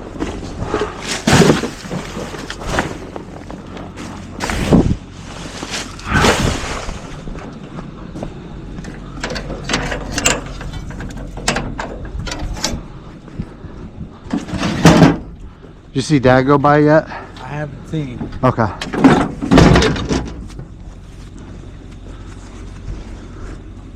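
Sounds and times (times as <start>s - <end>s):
garbage truck humming: 0.0s - 16.0s
mechanical clanks and rattles: 8.8s - 12.9s, 14.2s - 15.4s, 18.2s - 20.8s.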